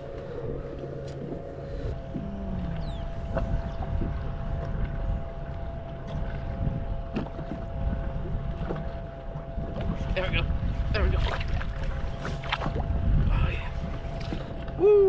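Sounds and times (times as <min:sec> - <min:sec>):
faint steady hum: 0:00.0 - 0:15.0
water washing against hull: 0:00.0 - 0:15.0
wind on microphone: 0:00.0 - 0:15.0.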